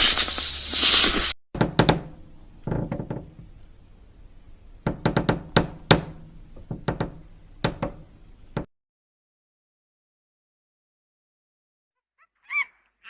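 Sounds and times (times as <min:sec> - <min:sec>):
sharp knocks and taps: 0:01.6 - 0:03.5, 0:04.8 - 0:08.7.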